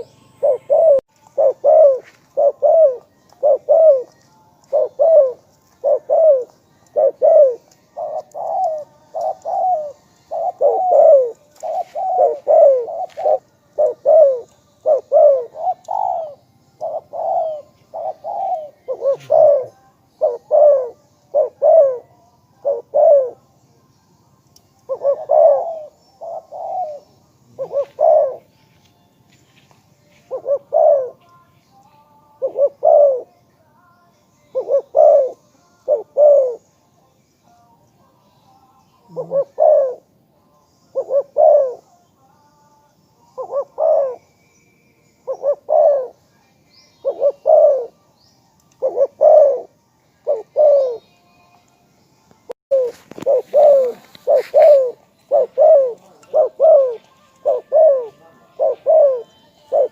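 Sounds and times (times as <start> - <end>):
dove cooing: 0.0 - 23.4, 24.8 - 28.5, 30.2 - 31.2, 32.4 - 33.3, 34.5 - 36.7, 39.0 - 40.2, 40.9 - 41.9, 43.3 - 44.3, 45.2 - 46.2, 47.0 - 48.0, 48.7 - 51.0, 52.7 - 59.9.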